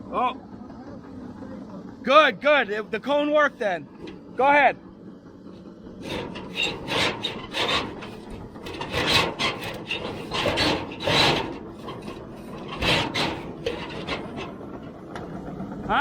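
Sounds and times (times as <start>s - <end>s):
pipe scraping inside chimney flue: 5.2s - 15.8s.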